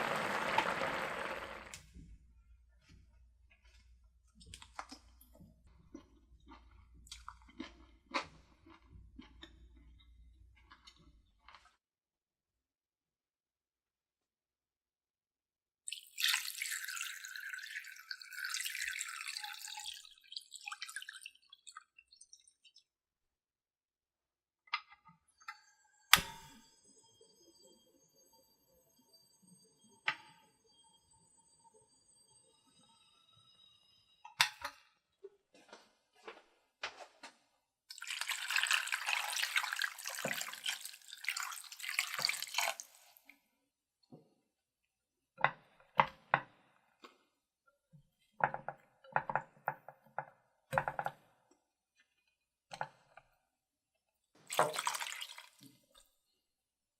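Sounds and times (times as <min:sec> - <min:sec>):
water pouring: 0:00.0 - 0:01.8, 0:15.9 - 0:22.6, 0:37.9 - 0:43.3, 0:54.5 - 0:56.0
water dripping: 0:15.9 - 0:22.8, 0:37.9 - 0:43.3, 0:54.5 - 0:56.0
tap running water into sink: 0:37.9 - 0:43.0, 0:54.5 - 0:55.6.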